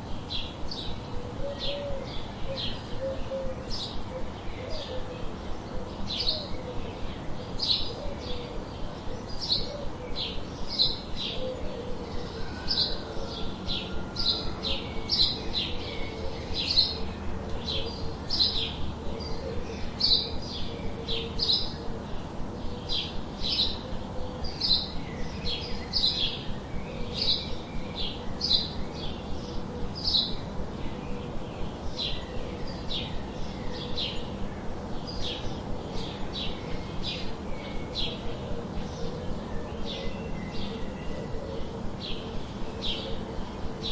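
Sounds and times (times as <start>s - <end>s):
birds chirping: 0.0s - 43.9s.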